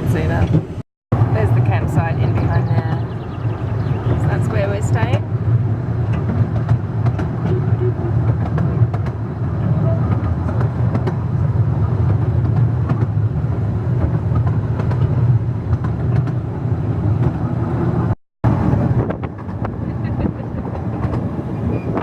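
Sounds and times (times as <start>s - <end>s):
train carriage rumbling: 0.0s - 22.0s.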